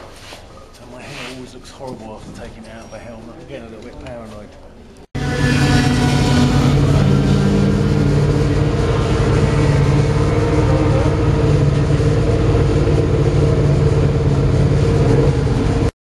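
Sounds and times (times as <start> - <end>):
vehicle engine running steadily: 5.2 - 15.9.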